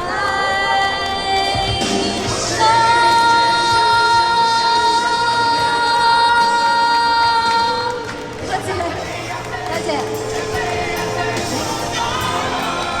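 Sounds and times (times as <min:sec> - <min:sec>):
pop backing music: 0:00.0 - 0:13.0
woman singing long high note: 0:09.7 - 0:13.0.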